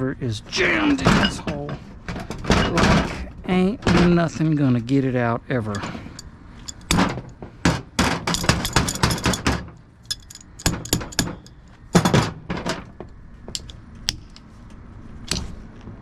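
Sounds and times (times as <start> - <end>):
metal knocks and clanks: 0.7 - 4.5, 5.7 - 13.8.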